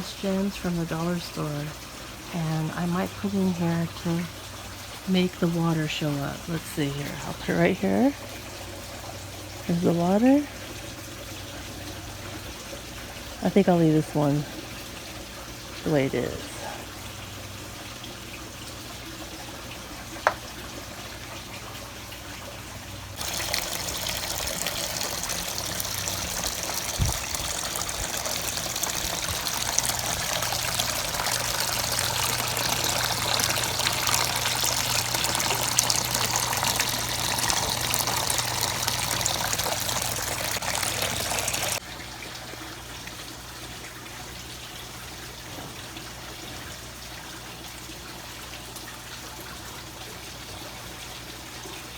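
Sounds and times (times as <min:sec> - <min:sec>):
water trickling quietly: 0:00.0 - 0:51.9
water pouring rush: 0:23.2 - 0:43.0.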